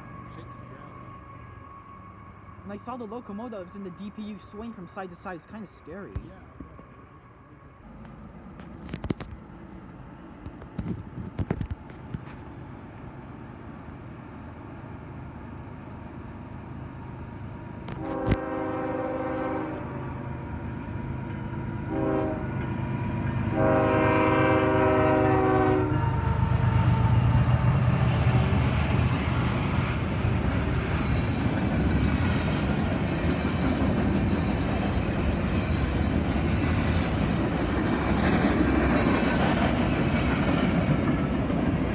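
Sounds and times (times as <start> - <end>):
train rumble: 0.0 - 41.9
locomotive horn blasts: 17.9 - 20.1, 21.9 - 22.5, 23.5 - 26.1.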